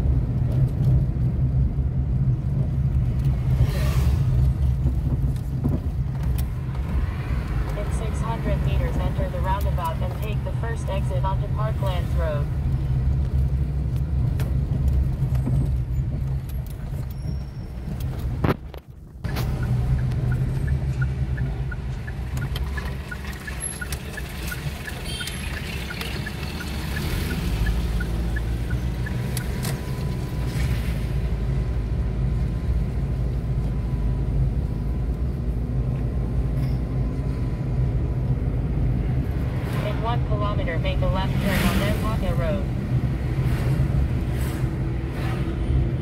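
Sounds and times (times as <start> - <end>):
car engine and tyre noise: 0.0 - 46.0
light even ticking: 19.3 - 29.8.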